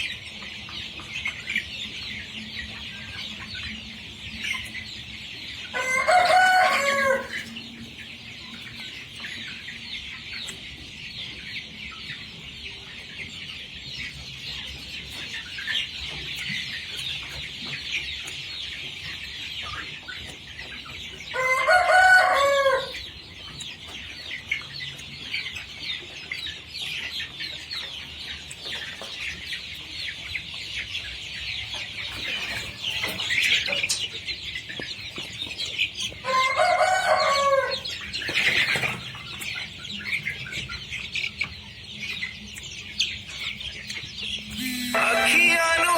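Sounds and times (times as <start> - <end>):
chickens clucking: 0.0 - 45.9
rooster crowing: 5.8 - 7.3, 21.4 - 22.9, 36.3 - 37.8, 44.6 - 45.9.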